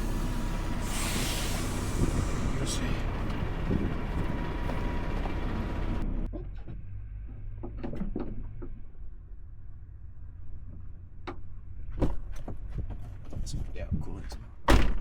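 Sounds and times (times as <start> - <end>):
truck engine idling: 0.0 - 6.4.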